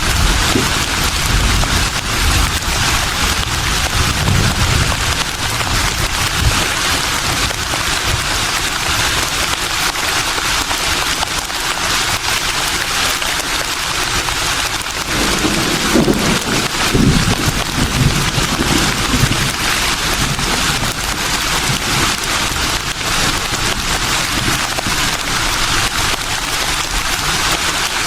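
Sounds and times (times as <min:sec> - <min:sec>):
low wind gusts rumbling: 0:00.0 - 0:09.6, 0:14.0 - 0:28.0
wind rustling through leaves: 0:00.0 - 0:28.0.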